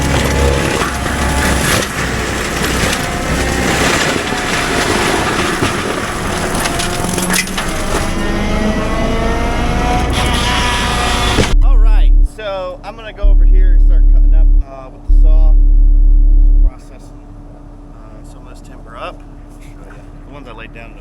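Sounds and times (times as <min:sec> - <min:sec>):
brush and wood cracking: 0:00.0 - 0:08.4
excavator diesel engine: 0:00.0 - 0:21.0.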